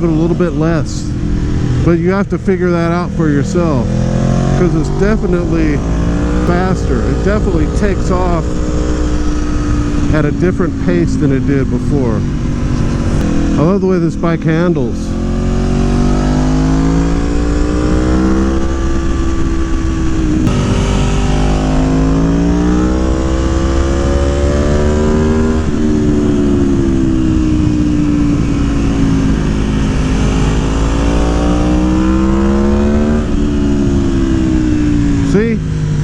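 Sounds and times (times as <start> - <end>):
motorcycle engine accelerating: 0.0 - 36.0
wind rushing: 3.8 - 11.1, 15.1 - 35.1.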